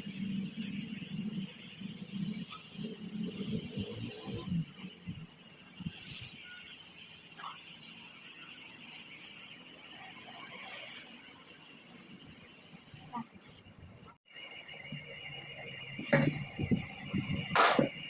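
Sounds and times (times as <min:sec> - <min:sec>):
air spray gun hissing: 0:00.0 - 0:13.6.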